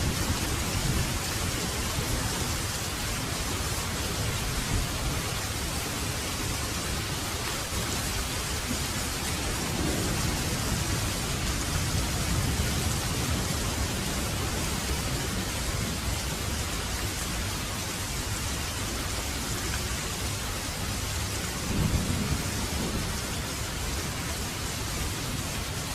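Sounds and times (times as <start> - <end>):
heavy rain falling: 0.0 - 25.9
thunder rumbling: 8.6 - 16.0, 21.6 - 24.1.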